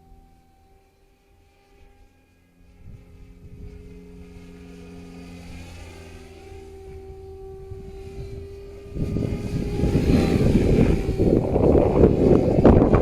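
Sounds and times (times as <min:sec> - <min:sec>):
rc helicopter motor whine: 0:00.0 - 0:13.0
wind rumbling on microphone: 0:02.6 - 0:13.0.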